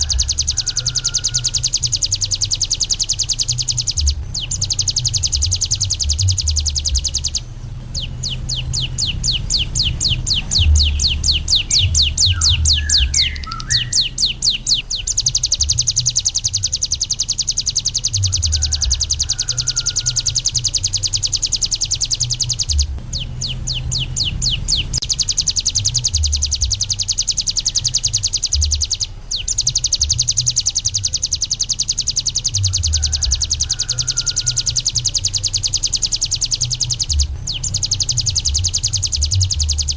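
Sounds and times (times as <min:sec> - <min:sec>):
low rumble: 0:00.0 - 0:30.3
bird singing high chattering song: 0:00.0 - 0:39.9.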